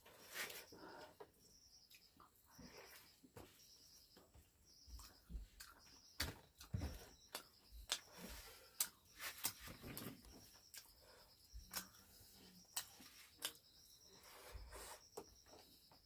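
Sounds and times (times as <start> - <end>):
chewing with wet mouth clicks: 5.0 - 5.9, 11.6 - 13.7.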